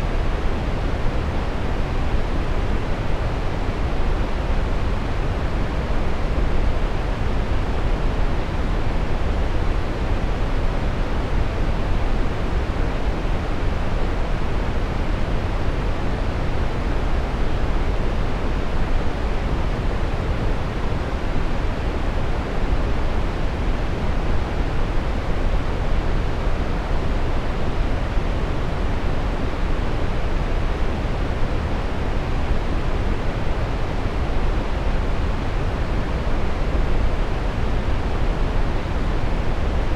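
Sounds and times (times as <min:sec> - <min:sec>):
brown noise hiss: 0:00.0 - 0:39.9.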